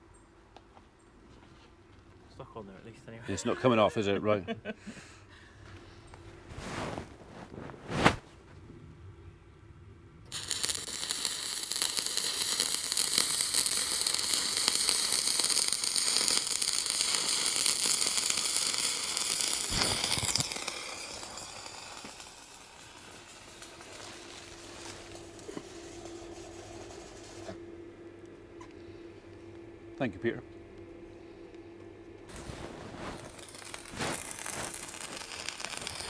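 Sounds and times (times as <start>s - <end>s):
welding arc crackling and hissing: 10.3s - 27.6s, 32.3s - 36.0s.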